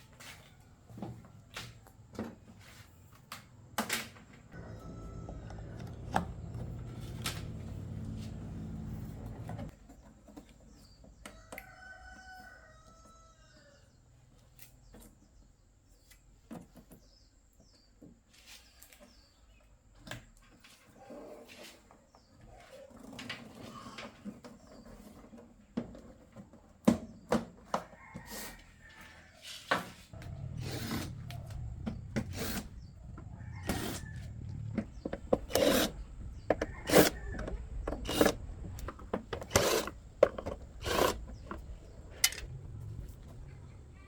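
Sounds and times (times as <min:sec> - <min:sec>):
low hum: 0:30.2 - 0:44.0.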